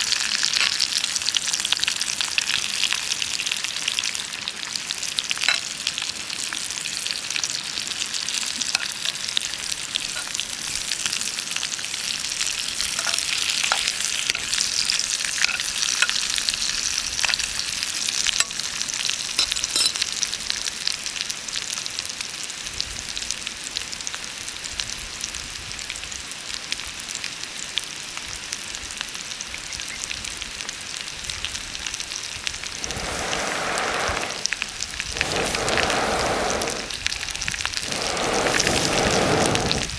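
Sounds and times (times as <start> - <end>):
food sizzling in a pan: 0.0 - 39.9
louder lower hiss: 32.6 - 39.9.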